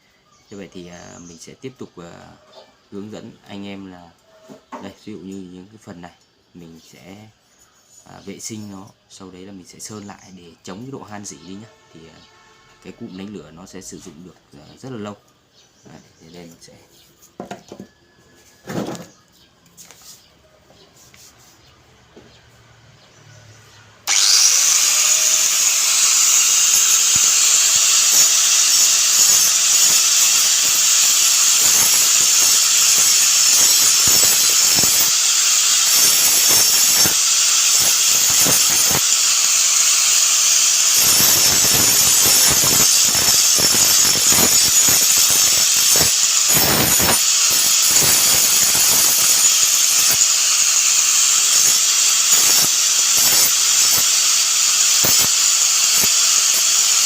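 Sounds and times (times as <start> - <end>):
electric grinder grinding metal: 24.0 - 57.0.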